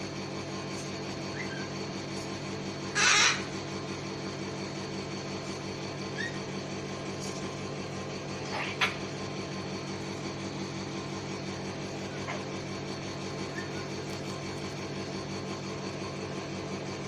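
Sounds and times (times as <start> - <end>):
steady low hum: 0.0 - 17.0
cockatoo screeching: 2.8 - 3.6, 6.1 - 6.4, 8.4 - 9.0, 13.5 - 14.0.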